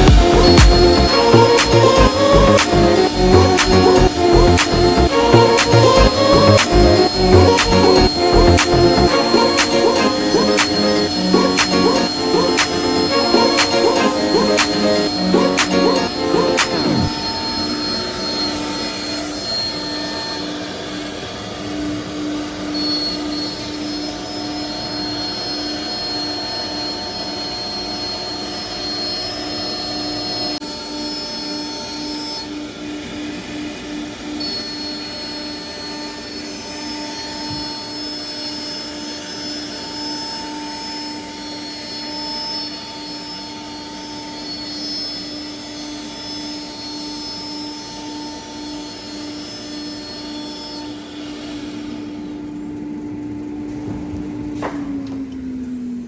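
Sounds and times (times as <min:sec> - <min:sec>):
cutting noise: 0:00.0 - 0:19.8
router spindle whine: 0:00.0 - 0:53.2.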